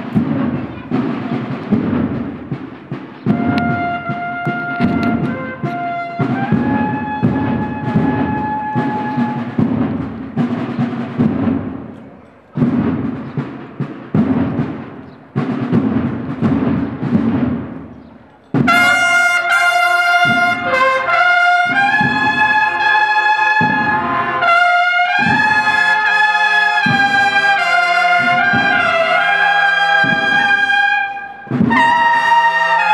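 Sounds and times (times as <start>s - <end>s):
drums beating and rolling: 0.0s - 32.9s
brass section playing: 3.3s - 9.8s, 18.6s - 32.9s.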